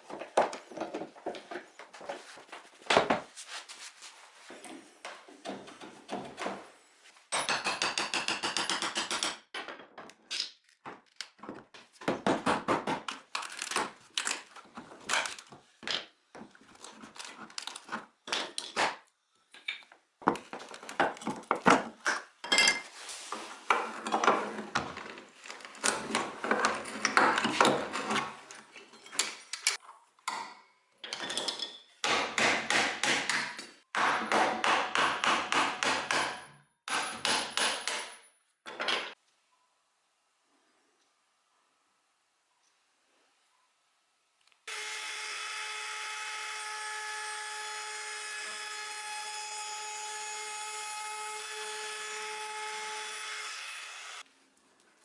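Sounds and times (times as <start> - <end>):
hand tools knocking on wood: 11.4 - 13.2.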